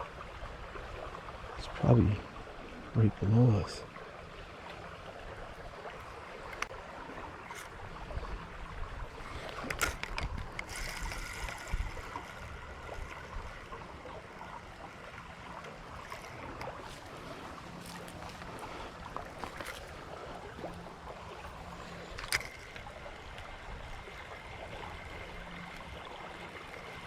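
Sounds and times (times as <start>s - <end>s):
creek water running: 0.0s - 27.0s
faint clicks and rustles: 9.2s - 13.8s, 15.5s - 23.5s.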